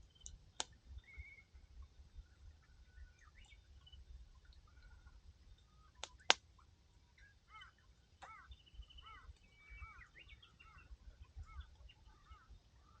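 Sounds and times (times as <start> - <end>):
small birds chirping: 0.0 - 13.0
campfire pops: 6.0 - 6.4.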